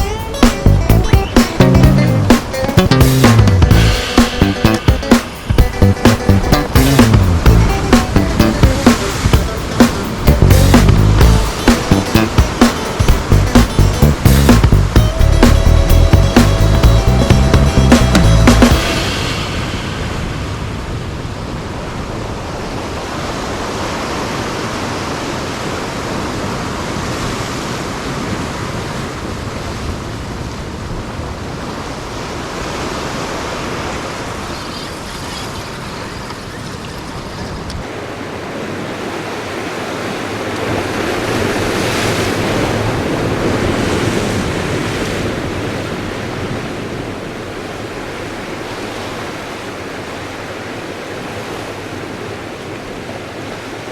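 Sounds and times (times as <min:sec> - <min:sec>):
ocean surf washing in: 0:00.0 - 0:53.9.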